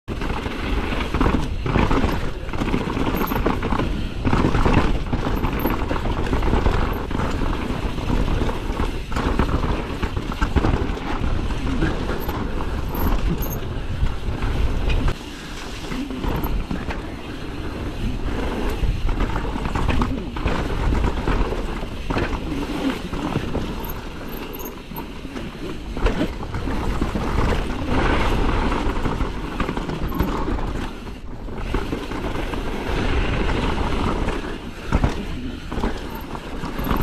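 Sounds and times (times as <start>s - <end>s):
bike knocking and rattling: 0.1s - 37.0s
bike tyre and drivetrain noise: 0.1s - 37.0s
wind rushing on microphone: 0.6s - 24.2s.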